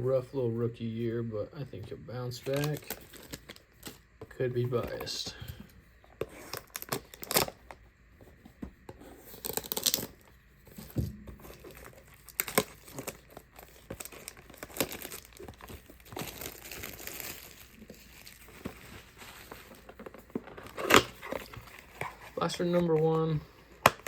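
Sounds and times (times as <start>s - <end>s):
plastic wrappers tearing and crinkling: 2.4s - 4.0s, 6.3s - 7.8s, 9.3s - 10.3s, 11.4s - 23.2s.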